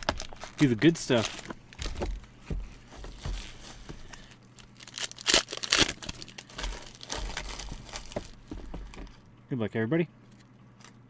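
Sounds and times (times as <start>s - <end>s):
plastic wrapping tearing and crinkling: 0.0s - 8.5s.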